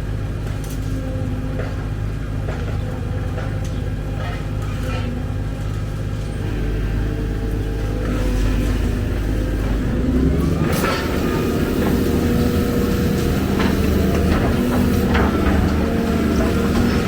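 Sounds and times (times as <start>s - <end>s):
excavator diesel engine: 0.0s - 17.0s
metallic clanks: 7.6s - 17.0s.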